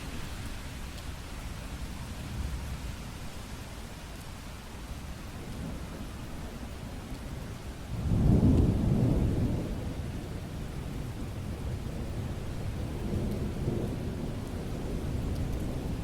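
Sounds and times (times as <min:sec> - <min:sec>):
steady rain: 0:00.0 - 0:16.0
thunder rumbling: 0:07.8 - 0:16.0.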